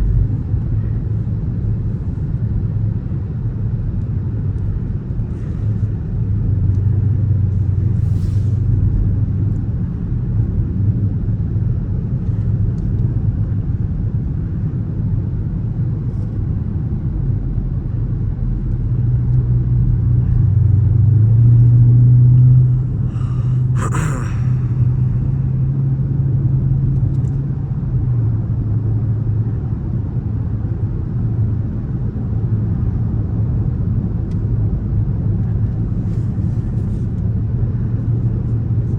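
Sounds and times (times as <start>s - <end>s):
car engine droning while cruising: 17.3s - 23.8s.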